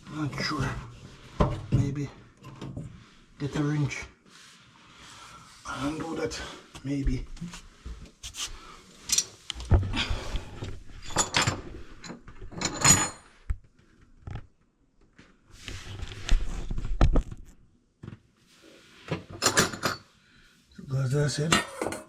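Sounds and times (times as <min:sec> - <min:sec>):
objects knocking and rattling: 0:09.1 - 0:14.5, 0:19.1 - 0:20.1.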